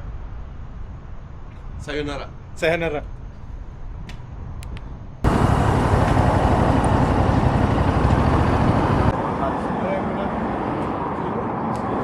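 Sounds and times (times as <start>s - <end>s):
motorcycle engine rumble: 5.2s - 9.2s.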